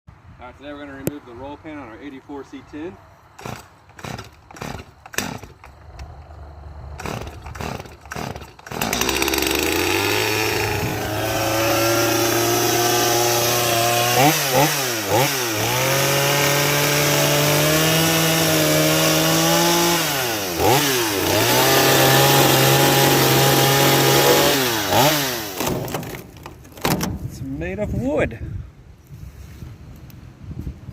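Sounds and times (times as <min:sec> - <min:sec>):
power tool cutting wood: 0:07.0 - 0:26.2.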